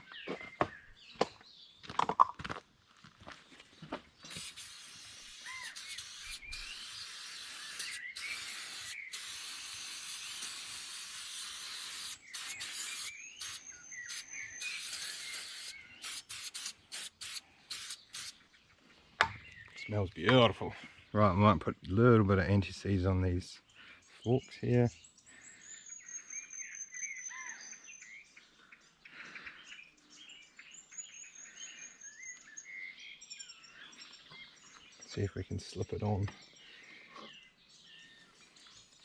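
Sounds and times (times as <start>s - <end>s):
aerosol spray hissing: 4.3s - 18.4s.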